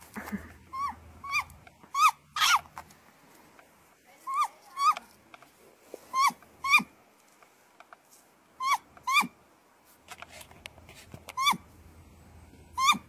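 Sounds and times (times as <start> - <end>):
owl giving short high calls: 6.1 - 6.9, 8.6 - 9.3, 12.8 - 13.0.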